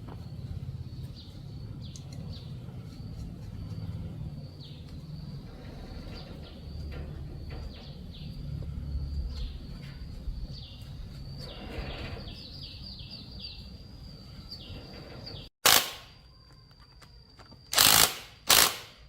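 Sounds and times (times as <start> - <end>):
small birds chirping: 0.0 - 15.5.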